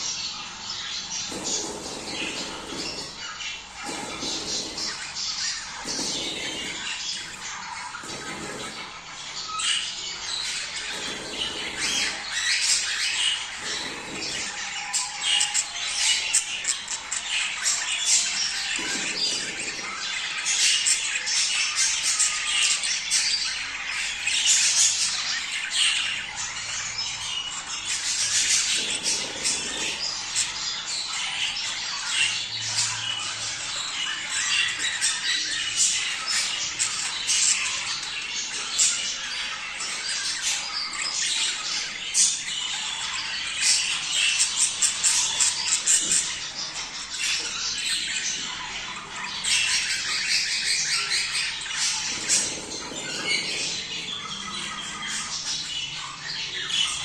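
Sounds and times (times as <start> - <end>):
budgerigars chattering: 0.0 - 57.0.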